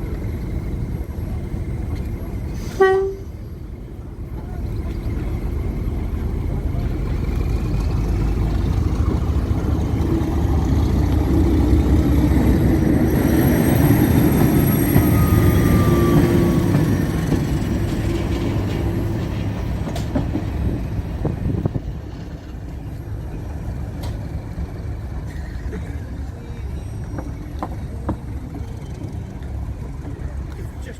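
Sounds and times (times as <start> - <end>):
diesel train engine passing: 0.0 - 30.9
high wheel squeal: 12.4 - 19.1.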